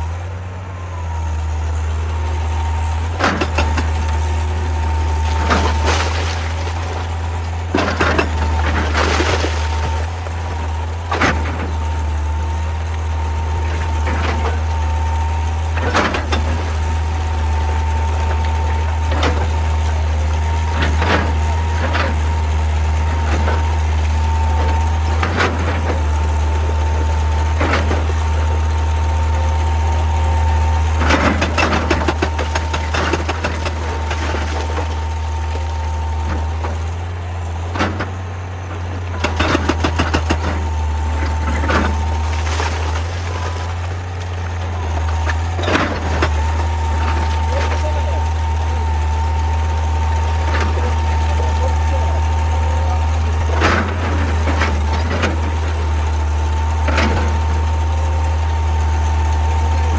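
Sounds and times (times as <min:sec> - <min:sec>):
constant mechanical whine: 0:00.0 - 0:59.9
excavator diesel engine running: 0:00.0 - 0:59.9
rocks knocking against bucket: 0:39.0 - 0:47.8.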